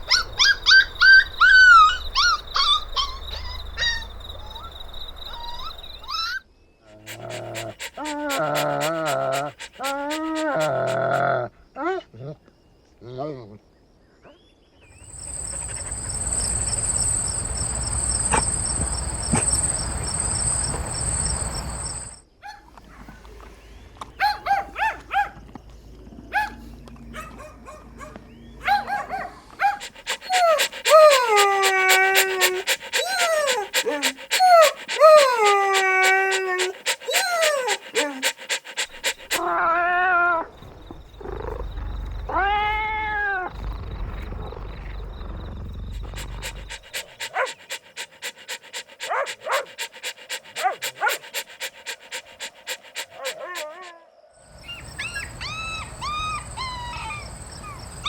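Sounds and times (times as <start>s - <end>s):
puppies whimpering and yelping: 7.0s - 11.2s, 15.2s - 22.2s, 29.8s - 39.6s, 46.0s - 53.9s.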